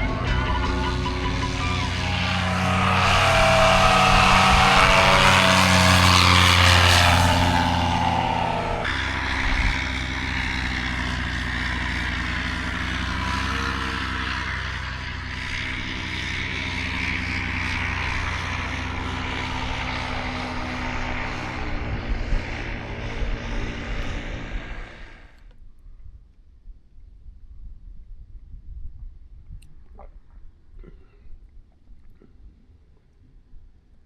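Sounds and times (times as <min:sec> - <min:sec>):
engine drone: 0:00.0 - 0:25.5.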